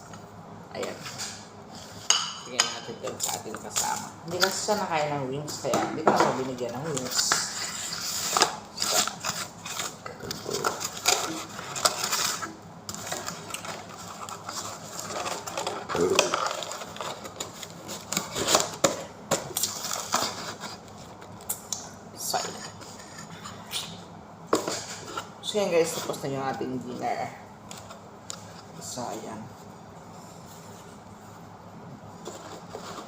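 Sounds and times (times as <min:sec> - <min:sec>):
food packaging rustling: 0:06.4 - 0:21.5.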